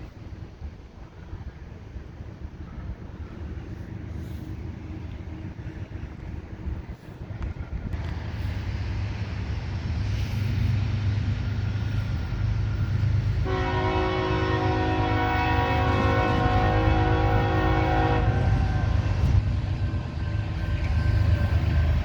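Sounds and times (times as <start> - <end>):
diesel locomotives rumbling: 0.0 - 22.0
locomotive air horn chord: 13.4 - 19.4.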